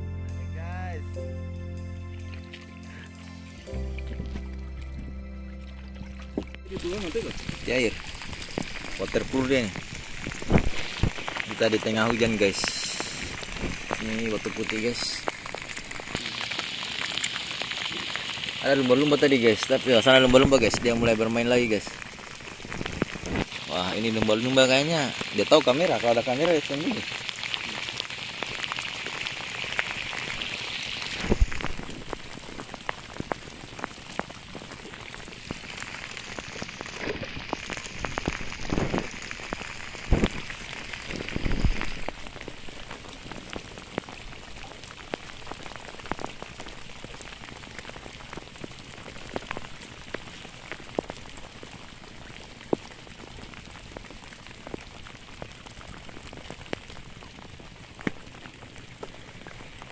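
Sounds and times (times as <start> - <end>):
steady rain hiss: 0.0 - 59.9
raindrops ticking: 0.6 - 59.9.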